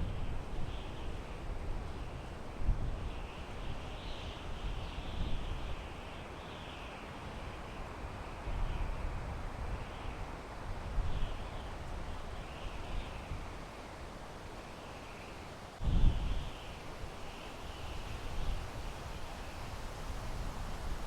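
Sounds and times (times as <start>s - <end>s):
wind through pine trees: 0.0s - 21.0s
wind buffeting microphone: 15.8s - 17.0s.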